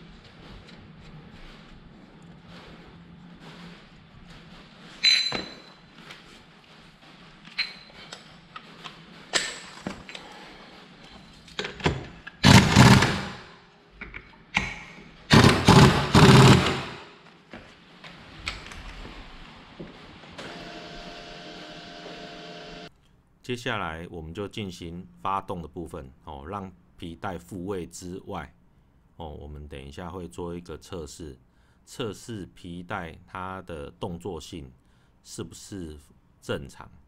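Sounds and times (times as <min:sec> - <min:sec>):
metal tools clinking: 0:05.0 - 0:05.8.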